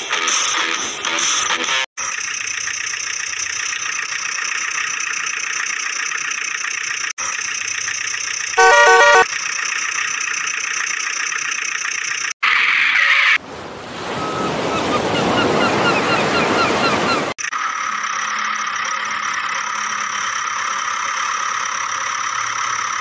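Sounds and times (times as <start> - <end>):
stepped horn honk: 8.6 - 9.3
tinny toy vehicle engine: 17.4 - 23.0.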